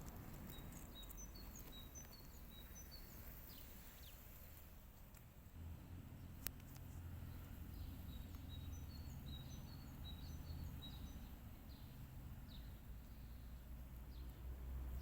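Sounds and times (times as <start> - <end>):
low steady rumble: 0.0 - 15.0
small birds whistling and chirping: 0.3 - 4.5, 7.2 - 14.4.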